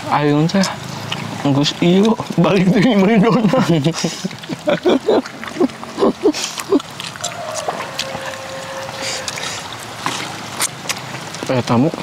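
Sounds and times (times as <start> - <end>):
chewing and smacking: 0.5 - 12.0
throaty mouth sounds: 3.9 - 11.5.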